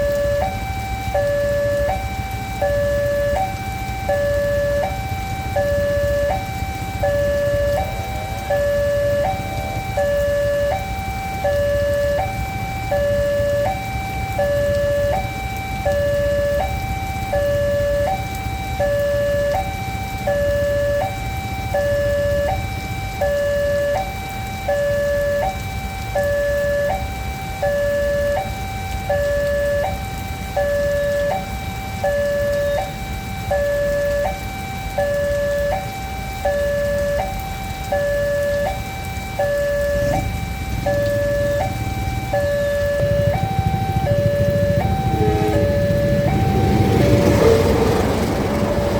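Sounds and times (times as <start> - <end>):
two-tone crossing alarm: 0.0 - 48.9
low rumble: 39.9 - 48.9.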